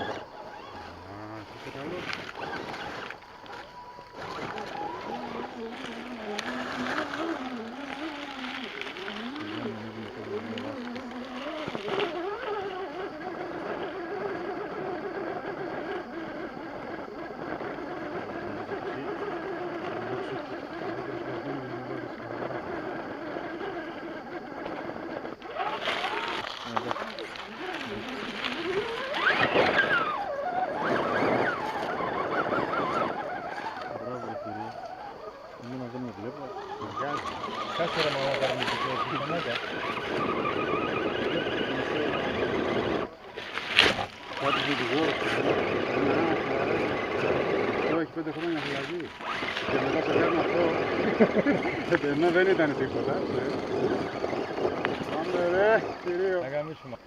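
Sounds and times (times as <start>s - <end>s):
tyres on rock and dirt: 0.0s - 56.5s
electric motor and gear whine: 0.0s - 57.0s.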